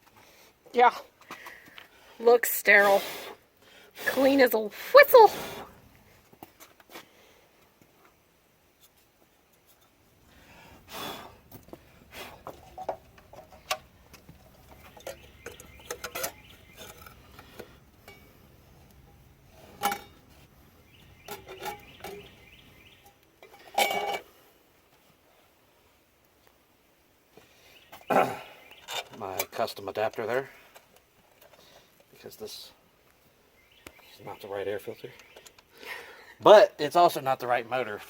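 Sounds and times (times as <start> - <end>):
metal tools clinking: 12.5 - 18.3, 19.6 - 20.3, 21.3 - 22.2, 23.0 - 24.2.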